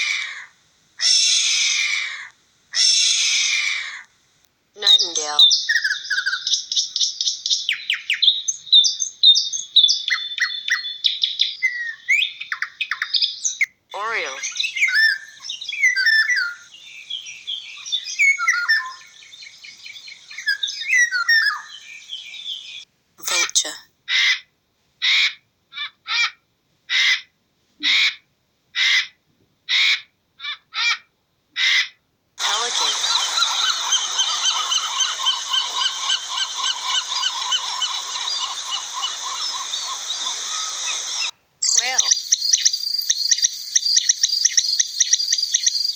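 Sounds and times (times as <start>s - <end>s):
pelicans honking: 32.4s - 41.3s.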